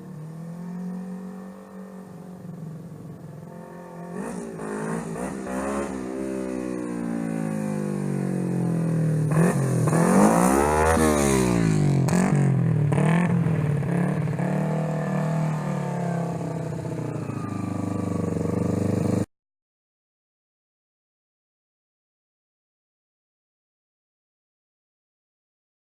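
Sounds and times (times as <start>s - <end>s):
motorcycle engine idling and revving: 0.0s - 19.3s.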